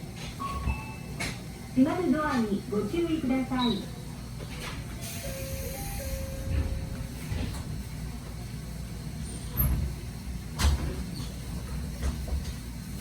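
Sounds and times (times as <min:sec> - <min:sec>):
train rumbling: 0:00.0 - 0:13.0
train doors thudding shut: 0:04.4 - 0:08.0
door chime tone: 0:05.0 - 0:06.9.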